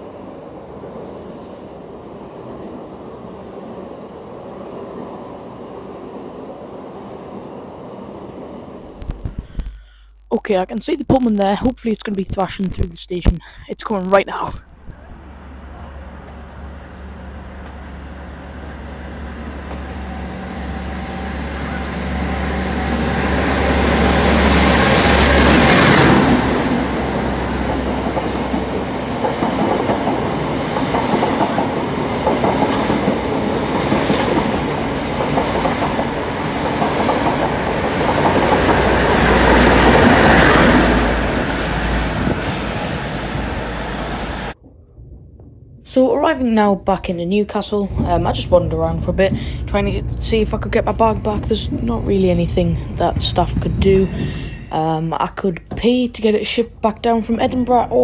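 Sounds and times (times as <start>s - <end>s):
diesel train engine: 14.6s - 44.6s, 47.9s - 58.0s
wheel squeal: 23.2s - 27.9s.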